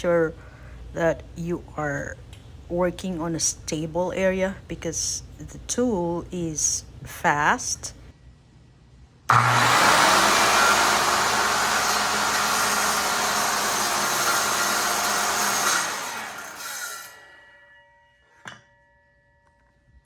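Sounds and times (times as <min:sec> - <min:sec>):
circular saw running: 0:09.3 - 0:17.5.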